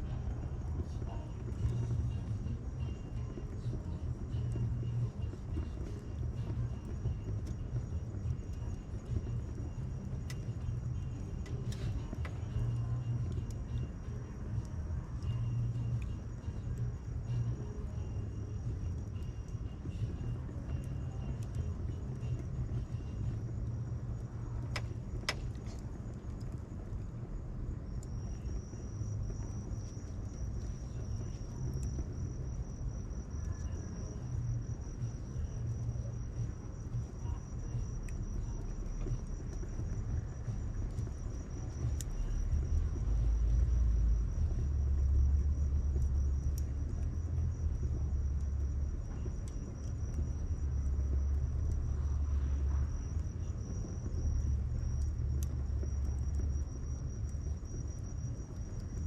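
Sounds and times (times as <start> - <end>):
low rumble: 0.0 - 59.0
bonfire crackling and popping: 0.1 - 59.0
high insect trill: 27.0 - 59.0.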